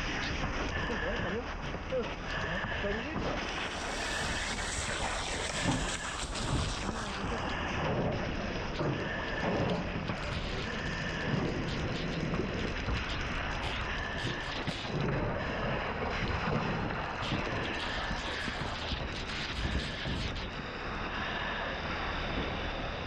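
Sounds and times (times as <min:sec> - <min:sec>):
fire hose spraying water: 0:02.6 - 0:20.4.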